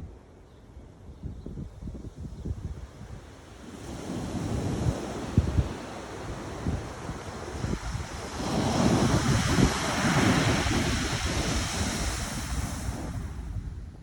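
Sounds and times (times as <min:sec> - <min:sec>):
wind buffeting microphone: 0:00.8 - 0:14.0
wave breaking on shore: 0:03.6 - 0:13.6.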